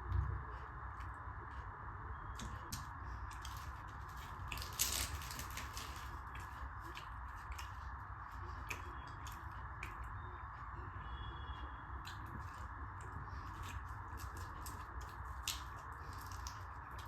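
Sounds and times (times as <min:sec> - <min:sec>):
background hum: 0:00.0 - 0:17.0
wet chewing and smacking: 0:02.4 - 0:10.9, 0:12.0 - 0:17.0.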